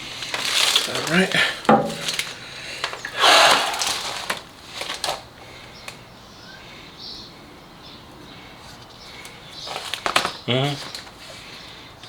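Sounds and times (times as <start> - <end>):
hands fitting rubber hose: 0.0 - 5.2.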